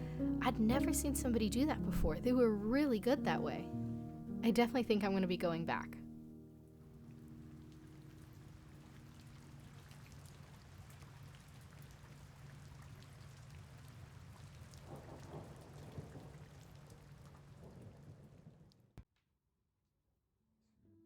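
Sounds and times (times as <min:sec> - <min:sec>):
low rush of rain: 0:06.0 - 0:18.9.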